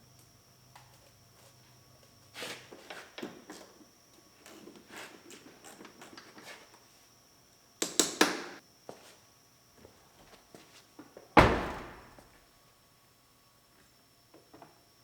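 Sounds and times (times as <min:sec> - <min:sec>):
car door slamming: 0:11.4 - 0:12.2
sharp knocks on car door: 0:11.4 - 0:12.2.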